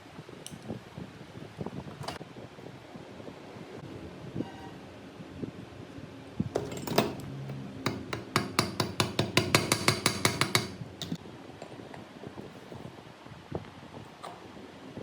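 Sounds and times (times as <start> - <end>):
hammer striking metal: 6.6 - 11.2.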